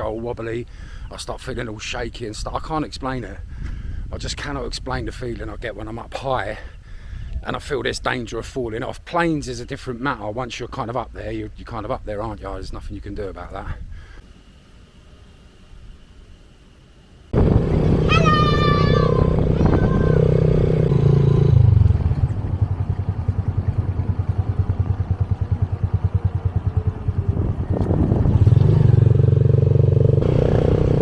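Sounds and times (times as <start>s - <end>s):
motorbike engine running: 17.4s - 31.0s.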